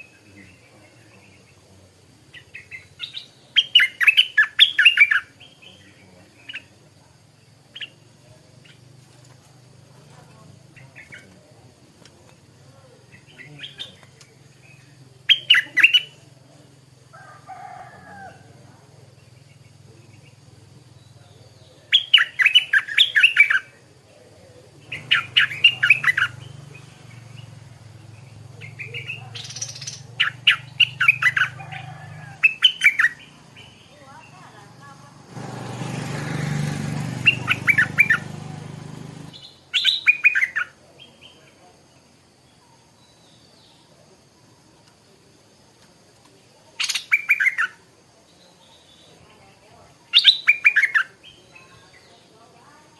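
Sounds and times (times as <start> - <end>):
bird singing clear notes: 2.3 - 6.8, 12.3 - 16.4, 19.1 - 23.8, 24.7 - 35.0, 37.2 - 38.7, 39.3 - 41.6, 46.8 - 52.3.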